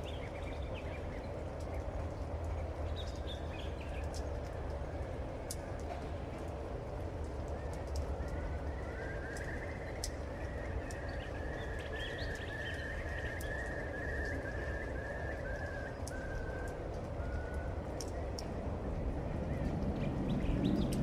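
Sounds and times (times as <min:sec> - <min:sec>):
sharp drip clicks: 0:01.4 - 0:06.5, 0:07.2 - 0:08.5, 0:12.2 - 0:14.4, 0:15.5 - 0:18.6, 0:20.6 - 0:21.0.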